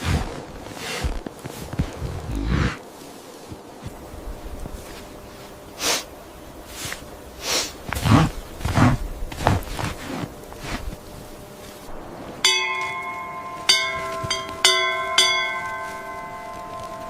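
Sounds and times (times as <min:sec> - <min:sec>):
breathy hissing sounds: 0:00.0 - 0:12.4
footsteps: 0:00.0 - 0:17.0.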